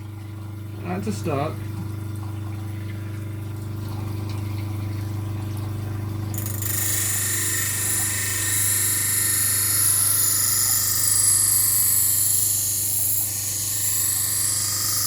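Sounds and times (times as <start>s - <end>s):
electric grinder motor humming: 6.4s - 15.0s
metal blade grinding: 6.4s - 15.0s.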